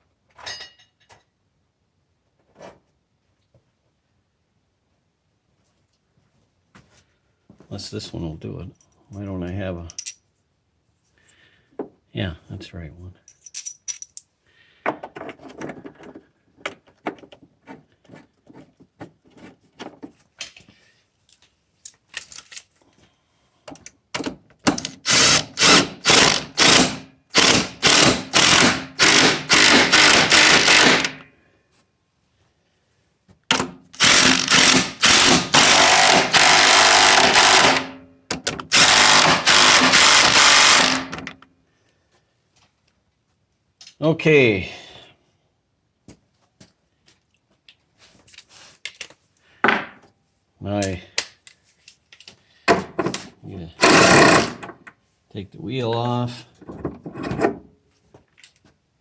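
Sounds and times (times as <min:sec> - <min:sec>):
power tool driving bolt: 0:24.2 - 0:31.2, 0:33.5 - 0:41.4, 0:53.0 - 0:54.9.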